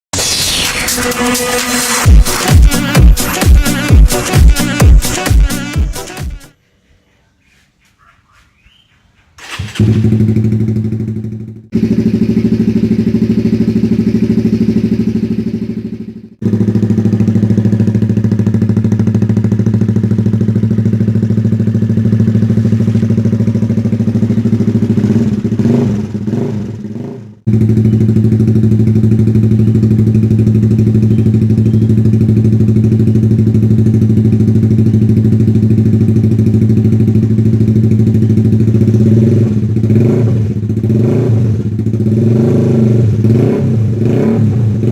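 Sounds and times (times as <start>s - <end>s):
motorcycle engine idling and revving: 1.5s - 6.5s, 9.4s - 44.9s.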